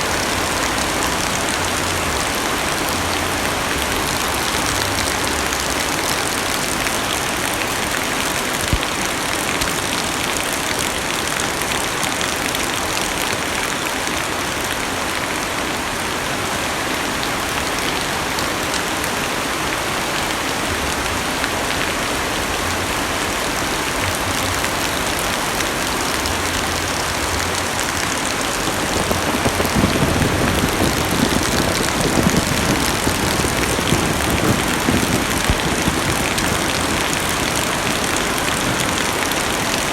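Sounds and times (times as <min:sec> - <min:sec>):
heavy rain drumming on car roof: 0:00.0 - 0:14.0, 0:23.5 - 0:39.9
deep rumble: 0:27.0 - 0:39.2.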